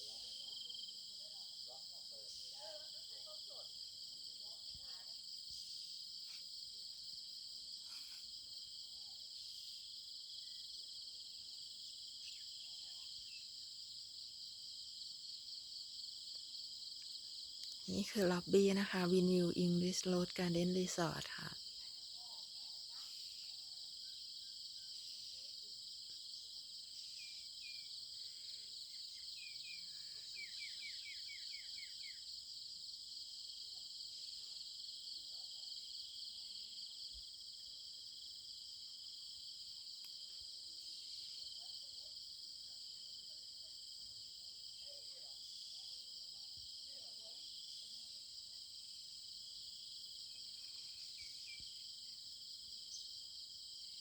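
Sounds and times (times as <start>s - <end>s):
insects trilling: 11.8s - 14.1s, 14.7s - 43.4s, 44.1s - 54.0s.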